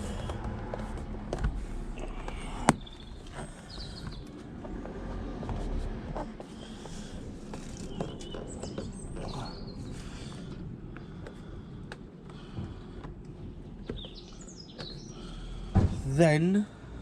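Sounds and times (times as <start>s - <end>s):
small birds chirping: 2.0s - 4.5s, 6.4s - 15.7s.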